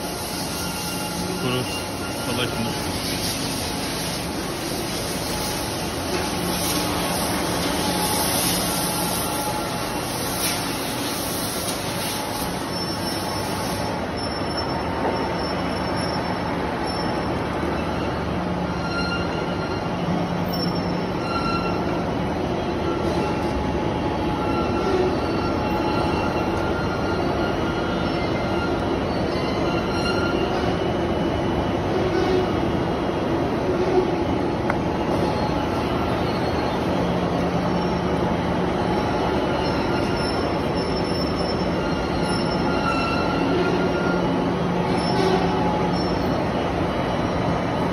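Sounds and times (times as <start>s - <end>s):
high-pitched squeaks: 38.8s - 46.4s.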